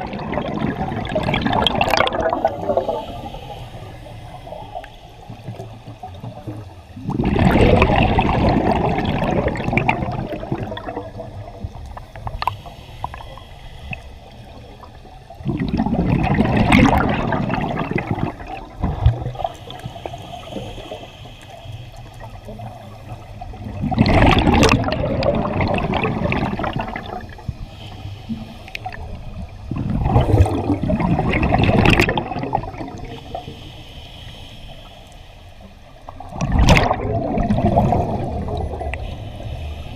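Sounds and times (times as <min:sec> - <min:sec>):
diver exhaling bubbles underwater: 0:00.0 - 0:03.4, 0:07.0 - 0:11.6, 0:15.4 - 0:19.6, 0:23.6 - 0:27.4, 0:29.7 - 0:33.2, 0:36.2 - 0:39.1
regulator hiss: 0:02.4 - 0:07.0, 0:11.5 - 0:15.4, 0:19.4 - 0:23.5, 0:26.9 - 0:29.7, 0:32.9 - 0:36.3, 0:38.9 - 0:39.9.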